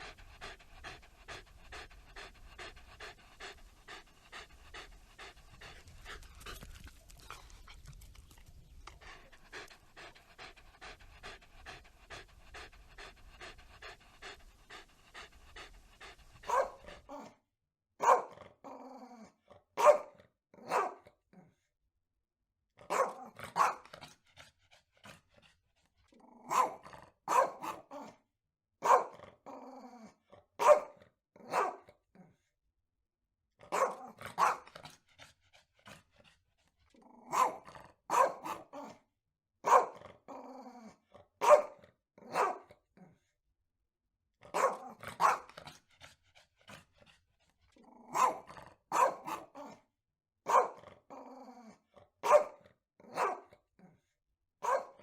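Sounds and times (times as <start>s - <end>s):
dog barking: 16.4s - 17.3s, 18.0s - 18.4s, 19.8s - 21.1s, 22.8s - 23.9s, 26.4s - 28.2s, 28.8s - 29.2s, 30.6s - 31.9s, 33.7s - 34.7s, 37.3s - 39.0s, 39.6s - 40.0s, 41.4s - 42.8s, 44.5s - 45.5s, 48.1s - 49.8s, 50.4s - 50.8s, 52.2s - 53.6s, 54.6s - 55.0s.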